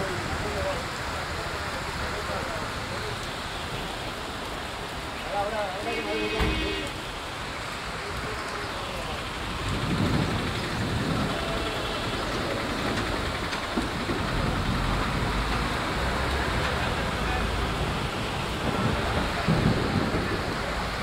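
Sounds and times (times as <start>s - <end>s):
steady rain falling: 0.0s - 21.0s
vehicles swishing through water: 0.0s - 21.0s.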